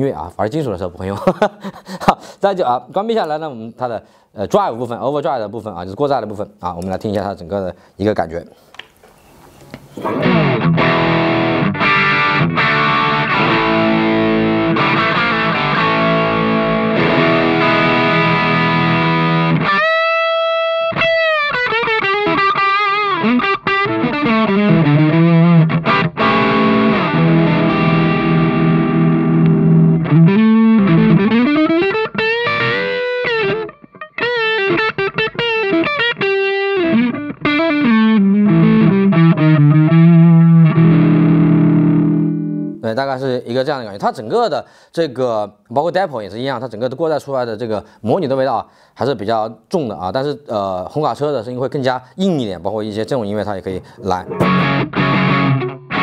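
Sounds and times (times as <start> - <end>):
distorted electric guitar: 10.0 - 42.8, 54.1 - 56.0.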